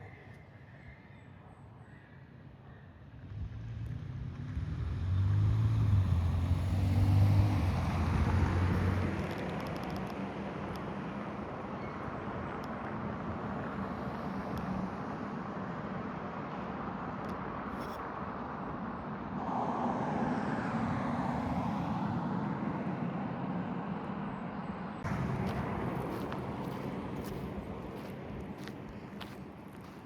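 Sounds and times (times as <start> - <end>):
highway traffic noise: 1.6 - 30.0
vehicle passing close: 3.4 - 9.4, 19.3 - 29.9.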